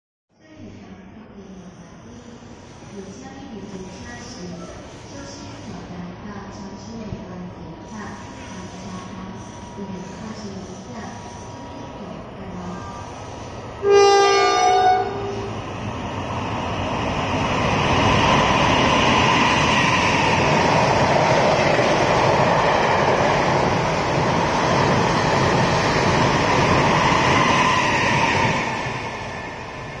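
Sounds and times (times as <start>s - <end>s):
train passing at high speed: 8.6s - 30.0s
train horn: 13.8s - 15.5s.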